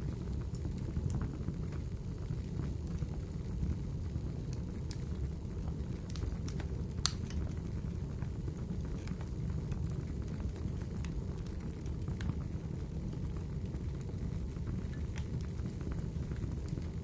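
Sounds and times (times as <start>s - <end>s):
fireplace fire crackling: 0.0s - 17.0s.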